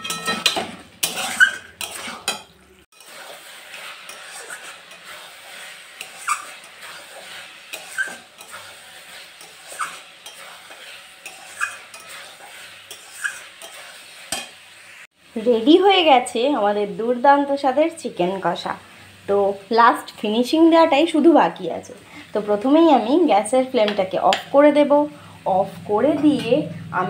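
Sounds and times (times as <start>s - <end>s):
spatula scraping a pan: 0.0s - 15.1s
chicken sizzling in a pan: 0.0s - 26.9s.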